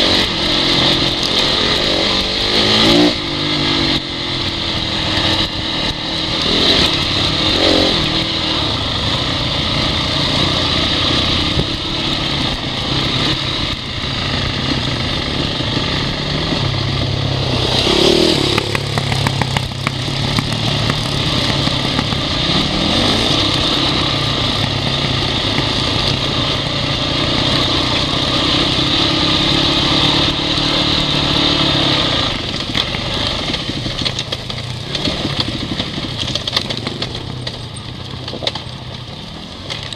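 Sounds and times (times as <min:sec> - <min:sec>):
dirt bike engine revving: 0:00.0 - 0:37.9.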